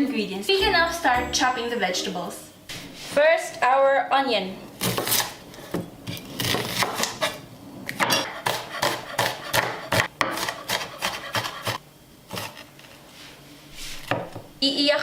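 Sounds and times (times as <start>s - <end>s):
knife cutting onion on board: 6.1s - 12.6s.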